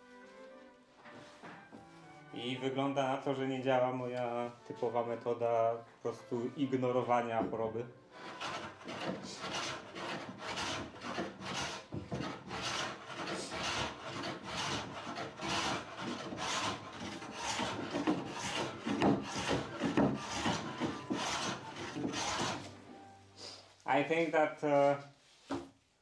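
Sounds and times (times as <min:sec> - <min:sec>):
hand tool rubbing over wood: 0:08.2 - 0:22.8.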